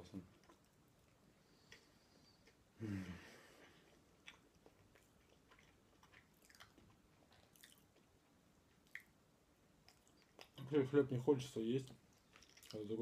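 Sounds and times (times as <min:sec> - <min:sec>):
chewing mouth clicks and smacks: 0:03.6 - 0:08.1, 0:08.8 - 0:09.2, 0:09.8 - 0:10.6, 0:11.9 - 0:12.9.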